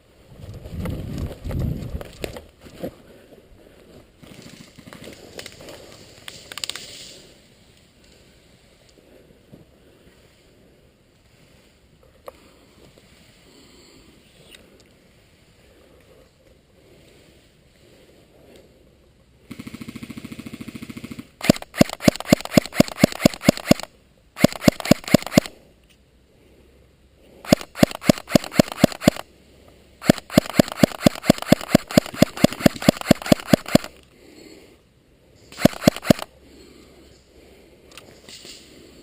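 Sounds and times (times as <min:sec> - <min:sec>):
airsoft guns firing: 0:19.5 - 0:25.6, 0:27.5 - 0:29.2, 0:30.0 - 0:33.9, 0:35.6 - 0:36.3.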